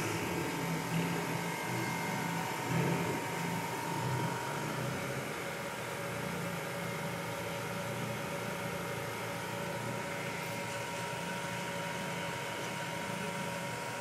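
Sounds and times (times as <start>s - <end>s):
smoke machine humming: 0.0s - 14.0s.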